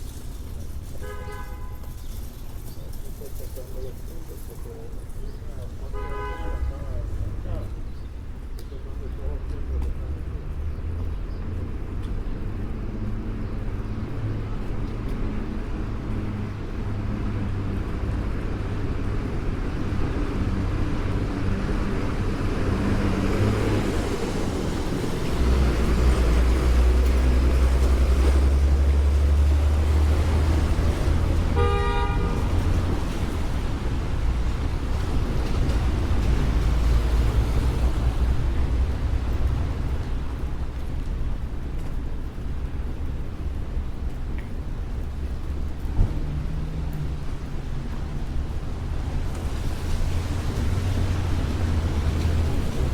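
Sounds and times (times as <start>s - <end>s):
street traffic rumbling: 0.0s - 52.9s
vehicle horn toot: 1.0s - 2.0s, 5.9s - 6.8s, 31.5s - 32.9s
heavy vehicle running: 6.8s - 52.9s.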